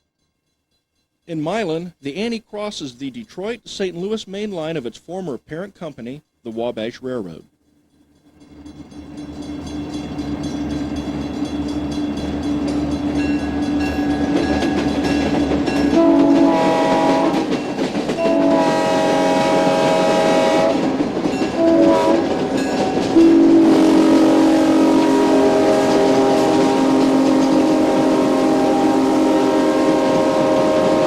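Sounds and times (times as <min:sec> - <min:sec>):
diesel locomotive running: 0:08.2 - 0:31.0
locomotive air horn blasts: 0:15.8 - 0:17.6, 0:18.2 - 0:31.0.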